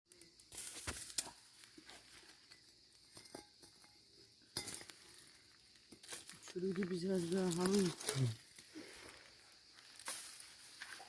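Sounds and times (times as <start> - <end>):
light clicks and clinks: 2.4 - 5.0.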